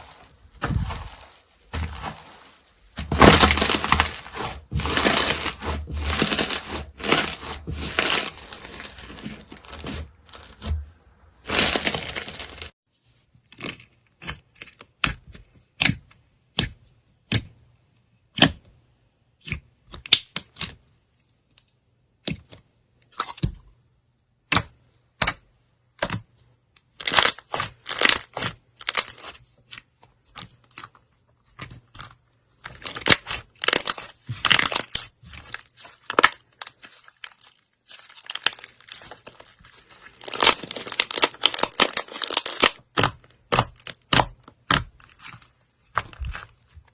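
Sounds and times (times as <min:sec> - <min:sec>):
slime popping and crackling: 0:00.0 - 0:10.7, 0:32.8 - 0:46.5.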